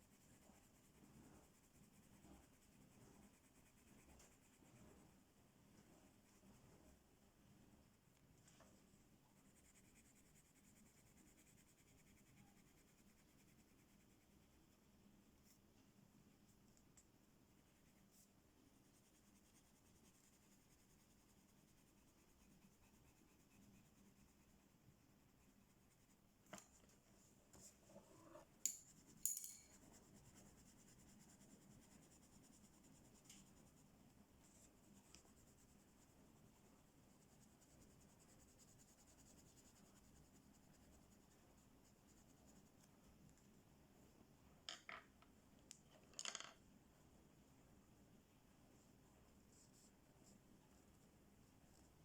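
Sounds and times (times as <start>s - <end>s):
coloring on paper: 17.6s - 26.9s.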